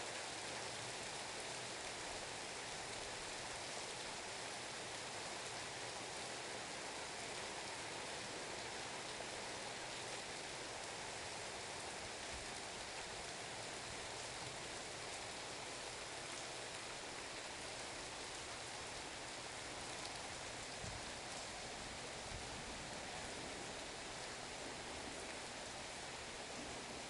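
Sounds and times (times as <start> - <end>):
heavy rain hiss: 0.0 - 27.0
faint raindrop taps: 20.8 - 21.1.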